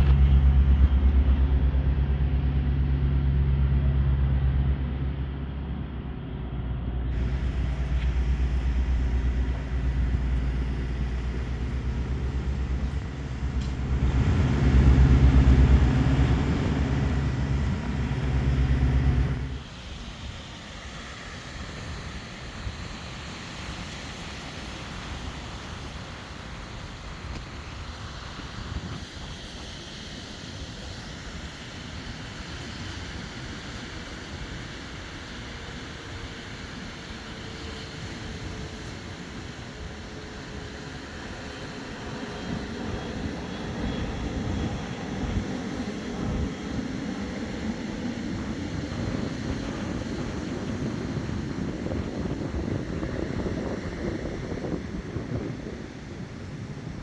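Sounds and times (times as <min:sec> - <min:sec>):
vehicle engine humming: 0:00.0 - 0:19.7
outdoor noise: 0:00.0 - 0:57.0.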